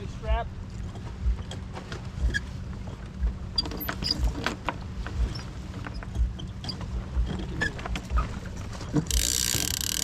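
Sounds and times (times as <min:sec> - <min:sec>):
low thumps of sailboat hull: 0:00.8 - 0:09.9
rigging clicks and squeaks: 0:03.5 - 0:10.0.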